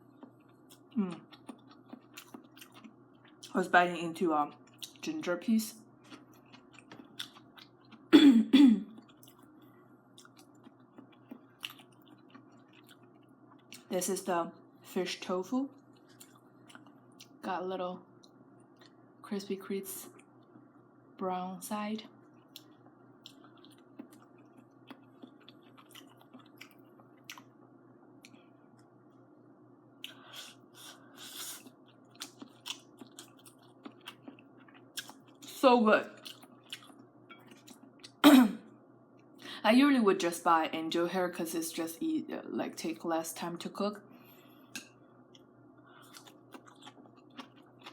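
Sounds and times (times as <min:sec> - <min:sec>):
low steady hum: 0:00.0 - 0:47.9
quiet chewing with mouth clicks: 0:00.1 - 0:03.6, 0:04.5 - 0:05.0, 0:06.0 - 0:08.1, 0:08.9 - 0:13.9, 0:15.8 - 0:17.4, 0:18.2 - 0:19.0, 0:22.2 - 0:27.6, 0:28.2 - 0:29.2, 0:30.0 - 0:35.5, 0:36.2 - 0:38.2, 0:44.2 - 0:47.9
woman coughing: 0:08.1 - 0:08.9, 0:38.2 - 0:38.7.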